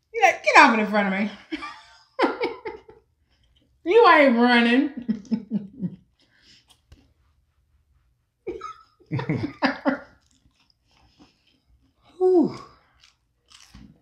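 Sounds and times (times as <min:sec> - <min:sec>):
chewing and wet mouth sounds: 0:06.0 - 0:07.4, 0:10.0 - 0:14.0.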